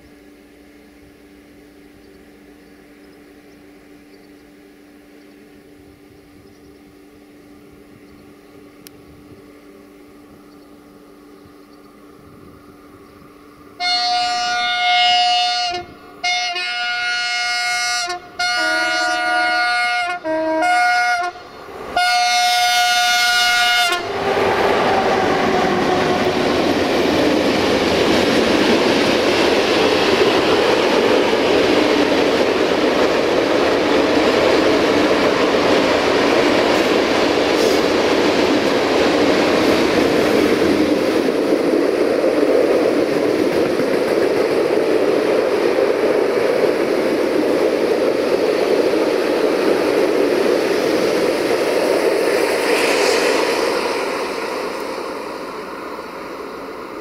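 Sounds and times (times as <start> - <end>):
locomotive horn blasts: 13.8 - 24.2
train wheels rattling on rails: 21.2 - 57.0.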